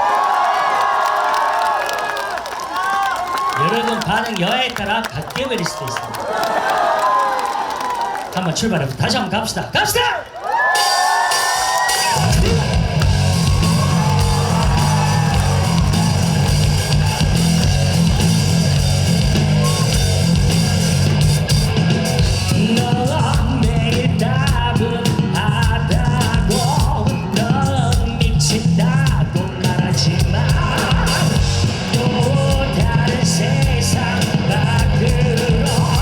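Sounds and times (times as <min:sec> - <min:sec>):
live rock band playing: 0:10.8 - 0:36.0.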